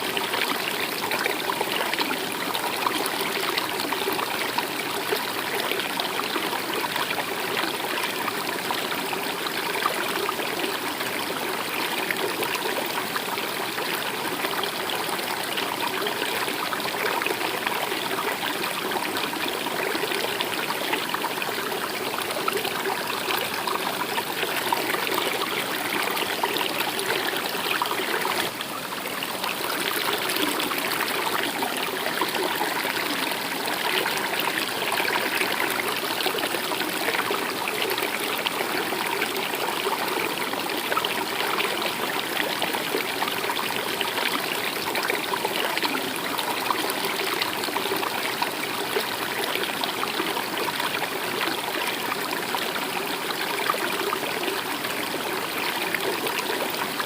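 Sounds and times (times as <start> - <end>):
stream trickling water: 0.0 - 57.0.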